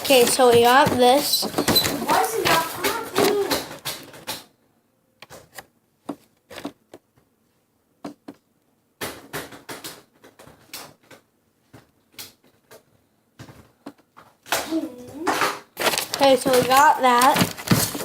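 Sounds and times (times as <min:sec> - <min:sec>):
paper crinkling being folded: 0:00.0 - 0:04.3, 0:15.3 - 0:18.0.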